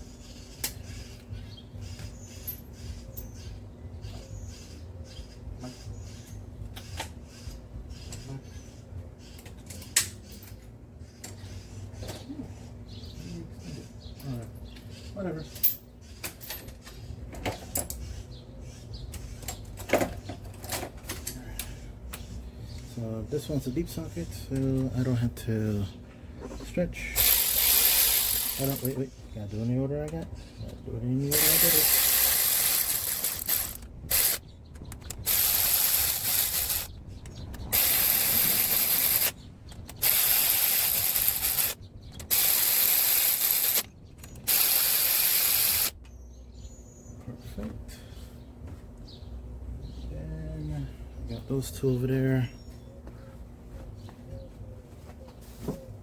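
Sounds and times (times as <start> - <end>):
hand tools clicking and knocking: 27.2 - 29.0, 30.1 - 45.9.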